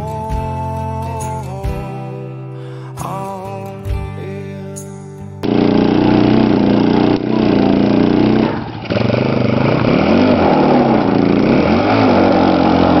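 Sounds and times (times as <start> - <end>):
engine revving: 5.4 - 13.0.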